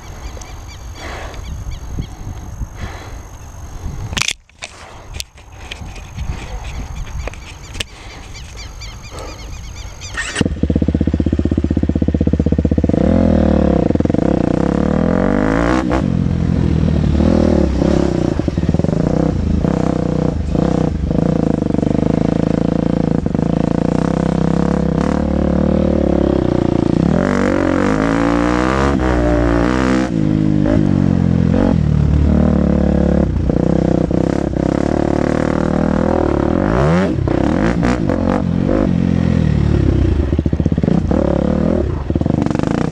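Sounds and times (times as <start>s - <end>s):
motorcycle engine revving: 8.6s - 42.9s.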